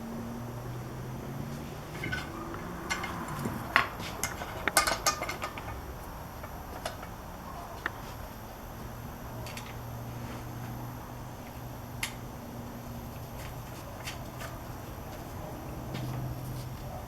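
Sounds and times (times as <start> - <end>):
chainsaw chain clinking and rattling: 1.9 - 5.8.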